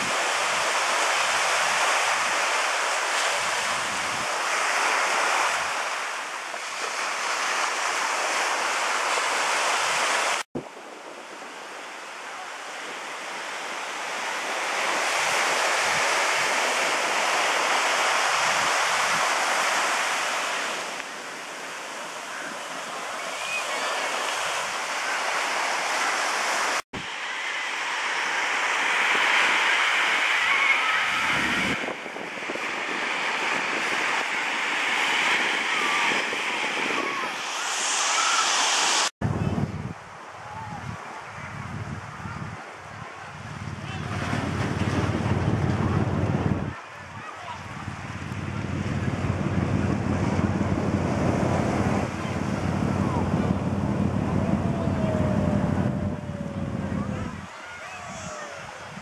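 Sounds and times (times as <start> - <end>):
wind buffeting microphone: 0.0 - 5.9, 28.1 - 59.0
ocean surf washing ashore: 0.0 - 59.0.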